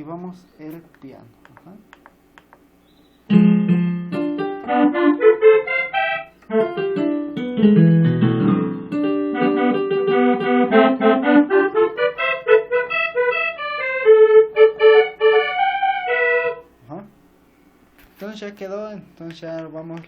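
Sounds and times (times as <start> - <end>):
keyboard piano and accordion: 3.2 - 16.8.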